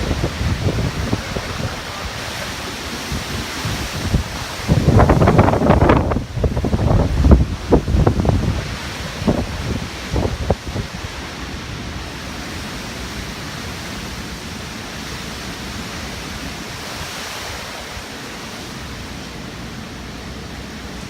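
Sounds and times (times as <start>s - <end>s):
wind buffeting microphone: 0.0s - 11.9s
strong wind rushing: 0.0s - 12.6s.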